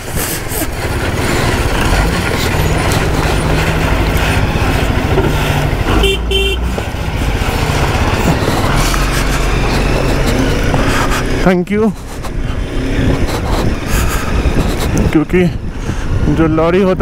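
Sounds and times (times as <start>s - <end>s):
motorcycle engine and road noise: 0.0s - 17.0s
vehicle horn toots: 5.9s - 6.8s.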